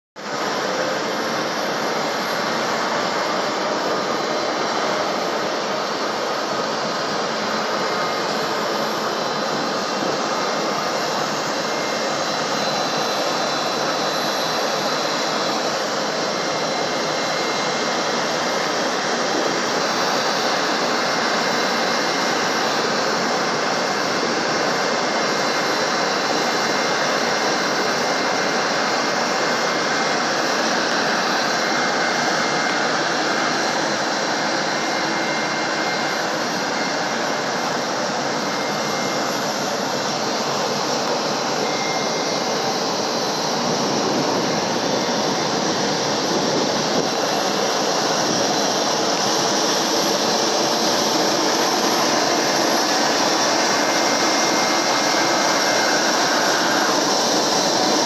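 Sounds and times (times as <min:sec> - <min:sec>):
jet engine running: 0:00.2 - 0:58.0.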